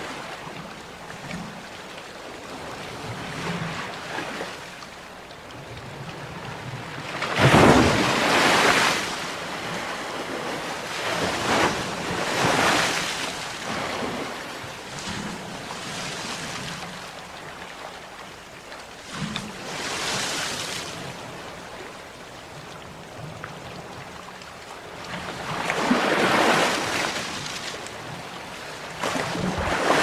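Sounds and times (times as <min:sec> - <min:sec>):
sea waves breaking: 0:06.0 - 0:18.2, 0:19.0 - 0:22.0, 0:22.7 - 0:30.0.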